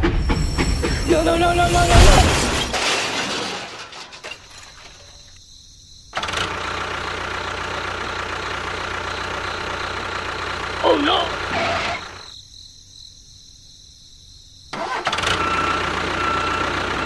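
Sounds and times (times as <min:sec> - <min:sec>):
loud noise: 0:00.0 - 0:03.8, 0:10.8 - 0:12.2.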